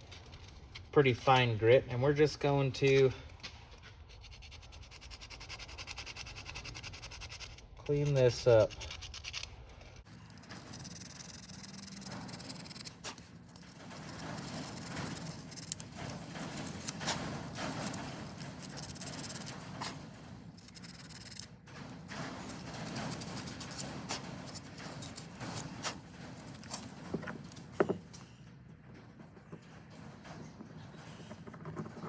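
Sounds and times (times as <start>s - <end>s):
sandpaper rubbing on metal: 4.2s - 26.9s.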